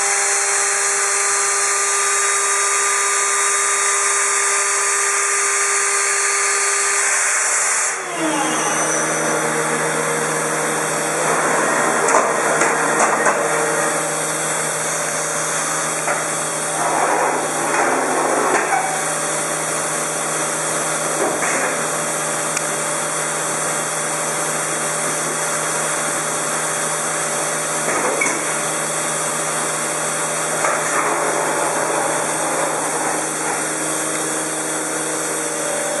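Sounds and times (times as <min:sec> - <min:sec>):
router spindle whining: 0:00.0 - 0:21.1, 0:25.7 - 0:36.0.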